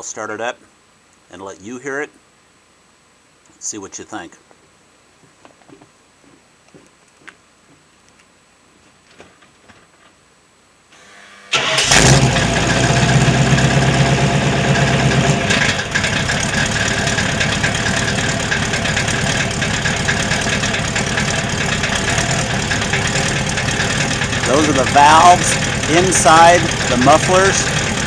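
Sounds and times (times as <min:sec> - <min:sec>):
engine cranking: 0:11.5 - 0:28.0
v eight engine idling: 0:11.5 - 0:28.0
muffler valves rattling: 0:14.8 - 0:28.0.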